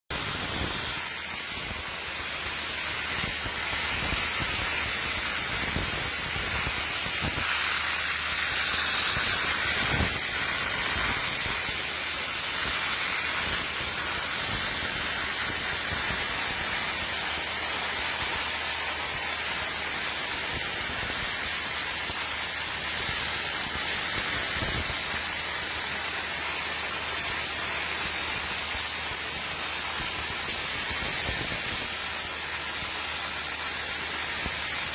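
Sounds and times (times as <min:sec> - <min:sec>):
dry ice blaster hissing: 0:00.1 - 0:34.9.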